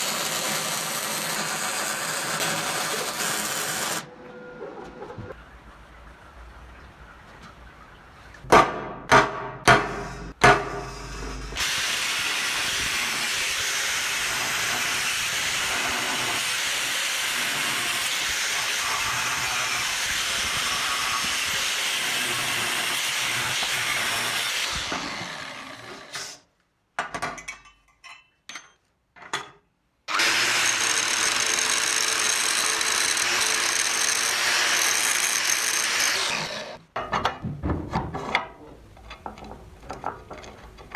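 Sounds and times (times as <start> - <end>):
power tool running: 0.0 - 4.1, 11.6 - 26.4, 30.1 - 36.8
sharp metal knocks: 8.5 - 10.9.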